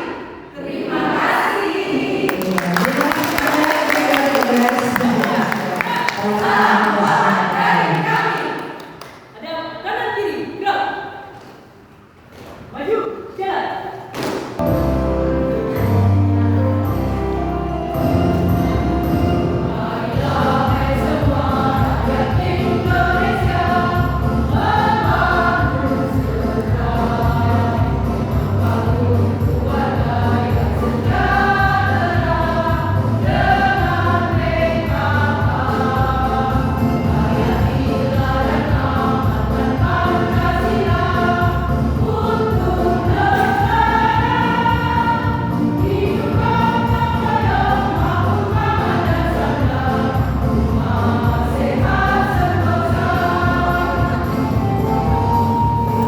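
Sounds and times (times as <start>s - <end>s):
choir singing: 0.0s - 2.4s, 5.3s - 8.8s, 14.6s - 56.0s
steady low beat: 14.6s - 56.0s.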